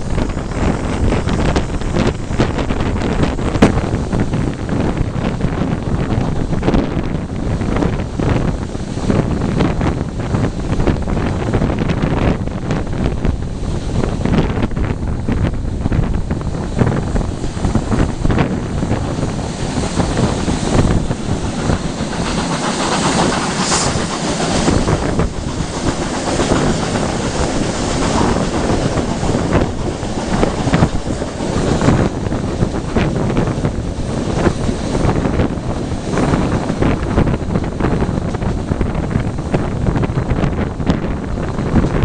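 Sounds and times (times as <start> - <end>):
moving train running noise: 0.0 - 42.0
wind buffeting microphone: 0.0 - 42.0
train wheels knocking: 15.9 - 42.0.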